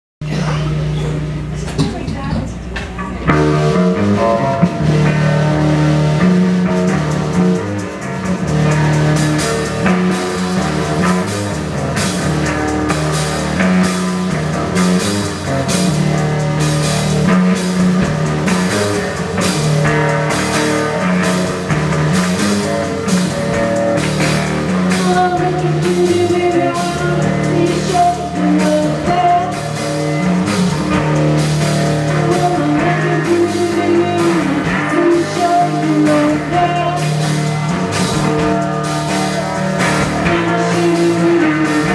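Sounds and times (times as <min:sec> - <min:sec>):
guitar: 0:00.2 - 0:41.9
drum beat: 0:04.6 - 0:41.9
person singing: 0:24.7 - 0:30.2, 0:32.0 - 0:37.6, 0:40.1 - 0:41.9.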